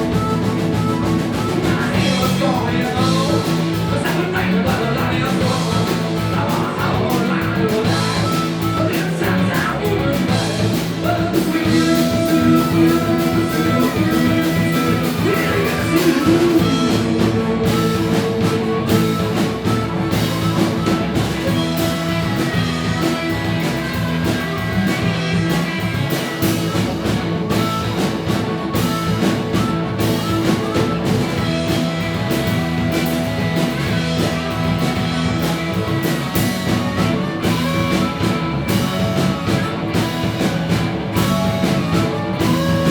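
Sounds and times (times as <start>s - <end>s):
drum kit: 0.0s - 42.9s
electric guitar: 0.0s - 42.9s
person singing: 0.1s - 28.1s.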